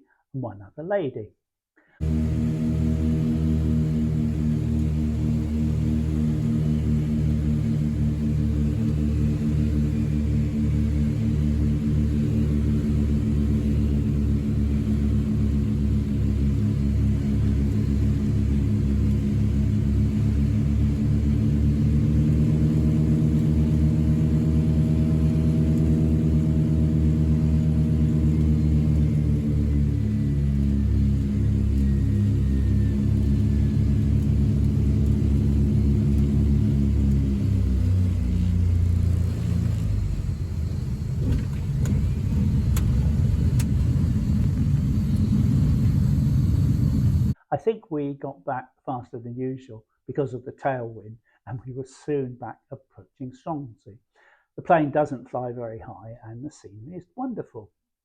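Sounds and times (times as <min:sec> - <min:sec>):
propeller plane engines droning: 0:02.0 - 0:47.4
sharp clicks: 0:42.7 - 0:43.8.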